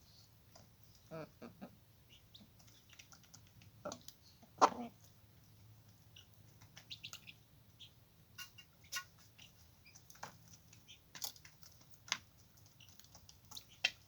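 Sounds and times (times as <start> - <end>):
faint chirps and clicks: 2.1 - 14.0
poultry calling: 4.6 - 5.0.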